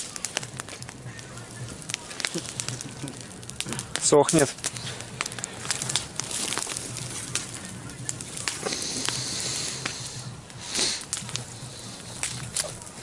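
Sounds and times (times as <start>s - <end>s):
bonfire crackling: 0.0s - 13.0s
burning material hissing: 0.0s - 13.0s.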